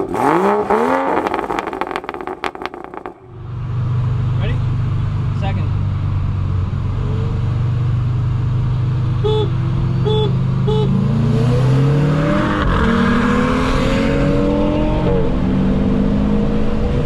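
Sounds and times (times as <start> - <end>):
car engine revving: 0.0 - 17.0
short beeps: 9.2 - 11.0.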